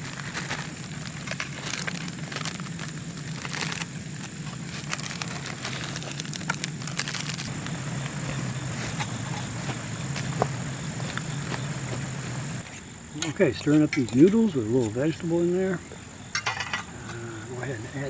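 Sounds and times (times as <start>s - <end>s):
cooking gear crinkling and clicking: 0.0s - 8.2s
camp stove burning: 0.0s - 17.2s.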